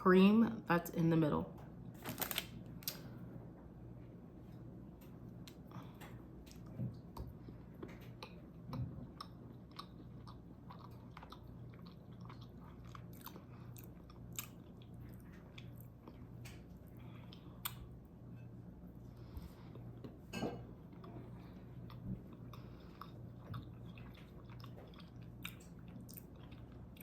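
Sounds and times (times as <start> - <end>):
faint low hum: 0.0 - 27.0
person chewing chocolate: 5.4 - 18.0, 20.8 - 27.0.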